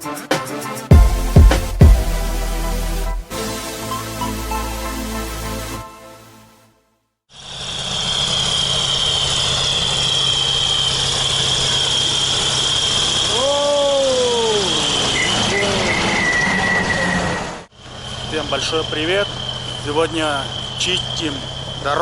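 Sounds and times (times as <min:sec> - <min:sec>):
tractor diesel engine running: 0:17.7 - 0:22.0.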